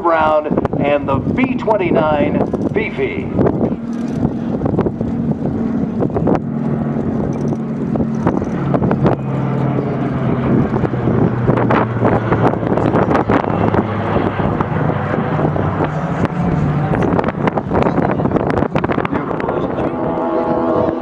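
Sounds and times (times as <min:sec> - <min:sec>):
piston aircraft engines droning: 0:00.0 - 0:21.0
wind buffeting microphone: 0:00.0 - 0:21.0.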